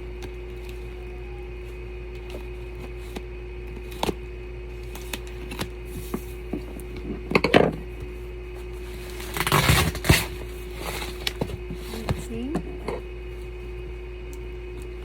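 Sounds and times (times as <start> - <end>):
steady low hum: 0.0 - 15.0
wrapping crinkling and tearing: 8.8 - 12.0.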